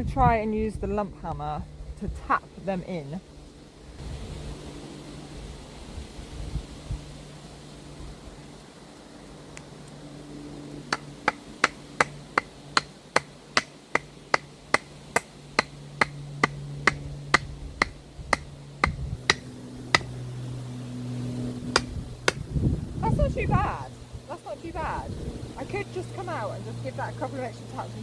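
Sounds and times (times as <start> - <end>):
hammer knocking wooden post: 10.9 - 20.1, 21.7 - 22.5.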